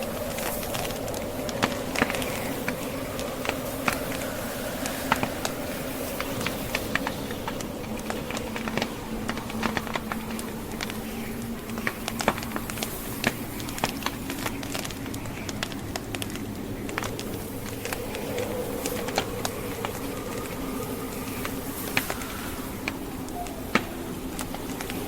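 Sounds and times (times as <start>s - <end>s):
blizzard wind howling: 0.0s - 25.0s
wood fire crackling: 0.0s - 25.0s.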